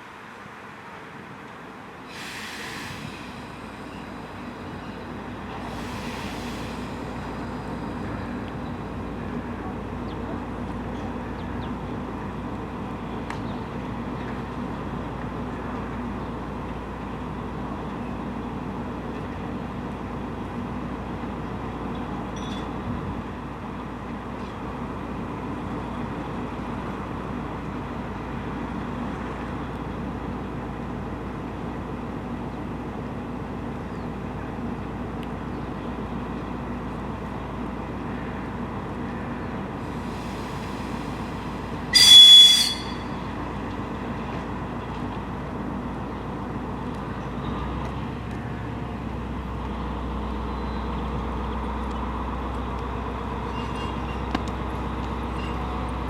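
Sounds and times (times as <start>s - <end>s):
diesel train engine droning: 0.0s - 56.0s
train horn blast: 41.9s - 43.4s.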